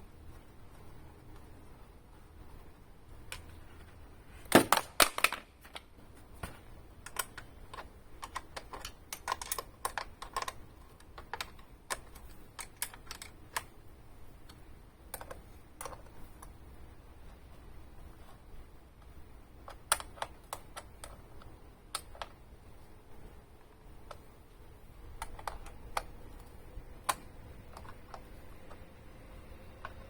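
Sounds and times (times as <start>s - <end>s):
small objects clicking and knocking: 4.5s - 13.7s, 25.1s - 28.9s.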